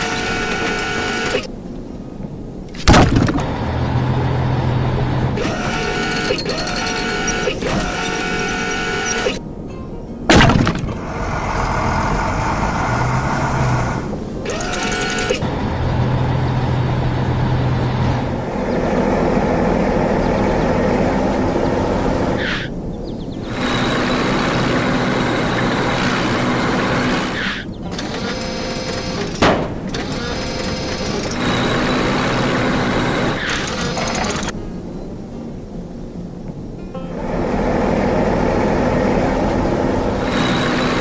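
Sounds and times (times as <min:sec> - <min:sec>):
cartoon engine noise: 0:00.0 - 0:01.5, 0:02.8 - 0:09.4, 0:10.3 - 0:22.8, 0:23.4 - 0:34.6, 0:37.1 - 0:41.0
sharp bang: 0:02.8 - 0:03.8, 0:10.3 - 0:11.3.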